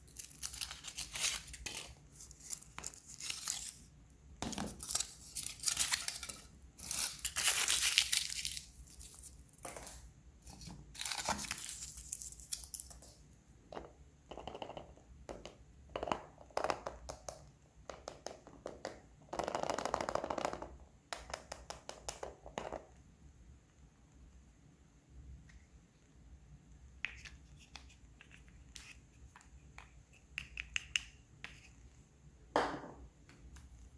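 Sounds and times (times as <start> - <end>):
foil wrapper crinkling and tearing: 0.1 - 3.8, 4.7 - 9.4, 10.9 - 12.9.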